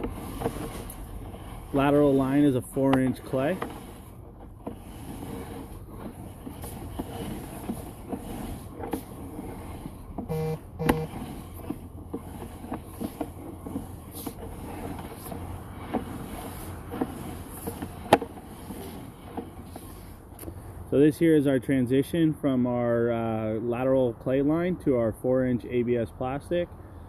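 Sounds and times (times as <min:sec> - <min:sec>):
cable clicking and knocking: 0:00.0 - 0:20.5
short beeps: 0:10.3 - 0:11.1.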